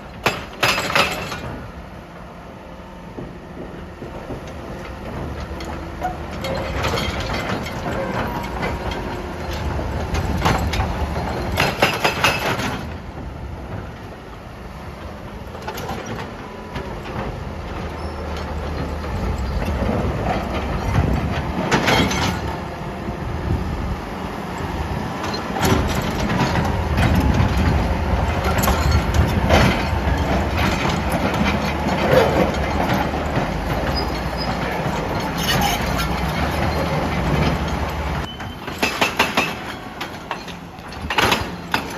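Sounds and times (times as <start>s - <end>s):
excavator diesel engine running: 0.0s - 41.9s
rock clanking against steel: 0.2s - 1.6s, 4.3s - 13.0s, 25.2s - 41.9s.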